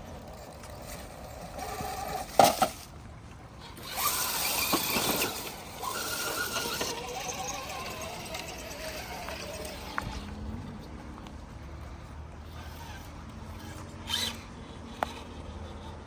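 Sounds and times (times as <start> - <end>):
electric motor whining: 3.6 - 10.9, 12.4 - 16.0.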